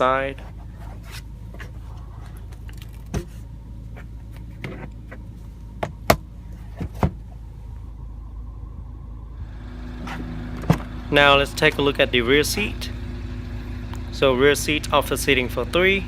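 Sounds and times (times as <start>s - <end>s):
low cabin rumble: 0.0s - 16.0s
clicks and knocks of car fittings: 4.0s - 7.2s.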